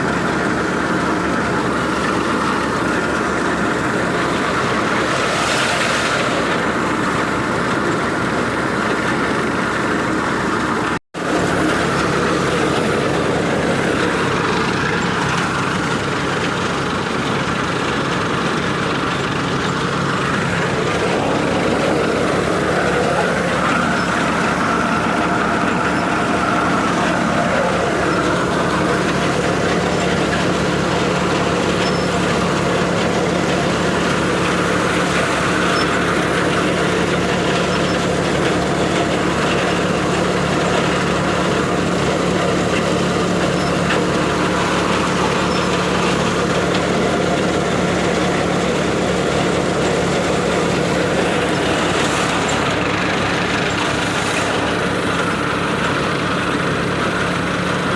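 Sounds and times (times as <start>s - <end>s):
thresher clatter: 0.0s - 57.9s
tractor engine running: 0.0s - 57.9s.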